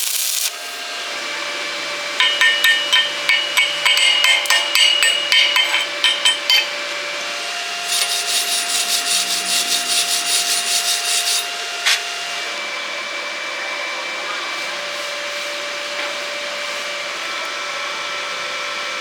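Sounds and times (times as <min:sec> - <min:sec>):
steady hum: 0:02.2 - 0:07.0.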